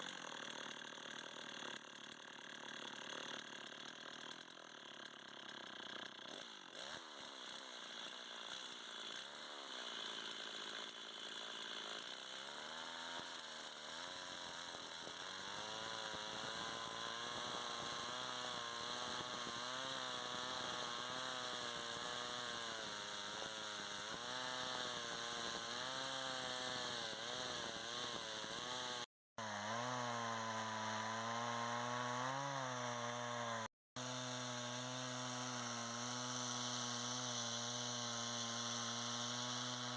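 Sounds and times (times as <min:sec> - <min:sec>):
small motor running: 0:14.0 - 0:29.1.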